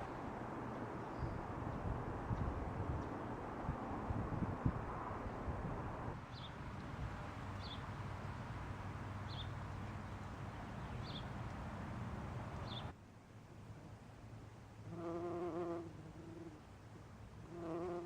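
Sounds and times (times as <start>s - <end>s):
small bird chirping: 12.6s - 12.9s.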